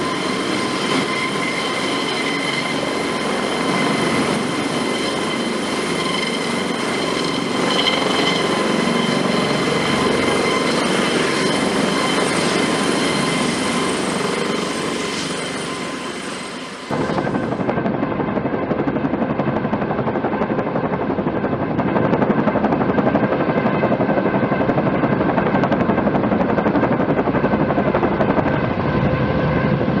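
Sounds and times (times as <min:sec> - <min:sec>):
helicopter rotor blade beat: 0:00.0 - 0:30.0
helicopter turbine whine: 0:00.0 - 0:30.0.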